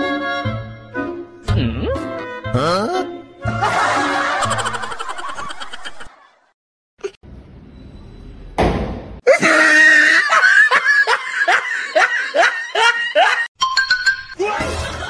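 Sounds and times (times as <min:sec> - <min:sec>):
loud laughter: 0:03.5 - 0:06.5, 0:09.3 - 0:13.5, 0:14.4 - 0:15.0.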